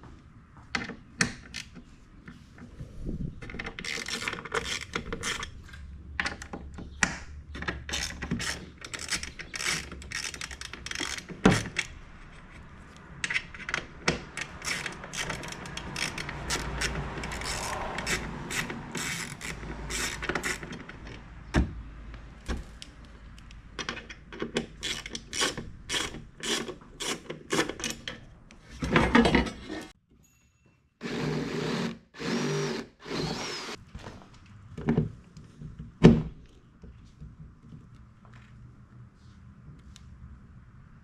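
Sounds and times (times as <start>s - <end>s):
hand tool clicking: 14.3s - 20.9s, 24.6s - 28.1s
power drill bursts: 31.0s - 33.8s.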